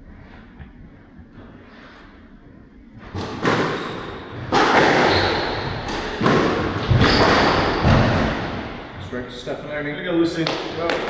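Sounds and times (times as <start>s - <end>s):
squash ball hitting rackets and walls: 3.0s - 9.0s, 10.4s - 11.0s.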